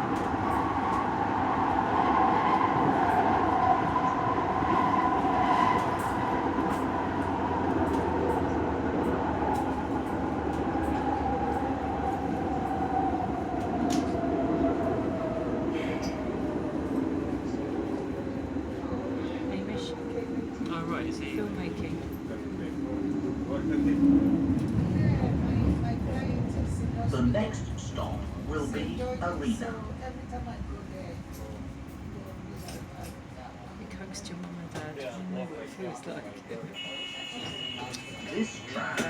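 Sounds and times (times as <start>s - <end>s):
tram wheels rumbling on rails: 0.0s - 35.0s.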